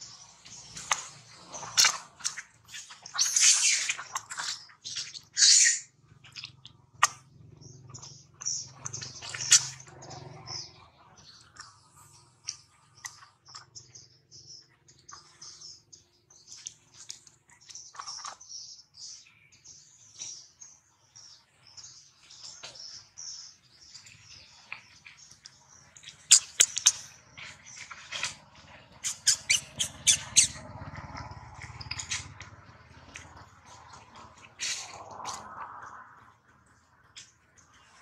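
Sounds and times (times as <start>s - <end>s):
small birds chirping: 0.0s - 38.0s
sharp clicks and smacks: 6.2s - 7.3s, 24.7s - 35.5s.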